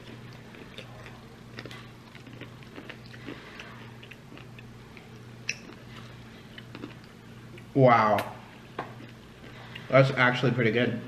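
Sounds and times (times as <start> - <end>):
chewing and mouth smacks: 0.0 - 9.9
steady low hum: 0.0 - 11.0.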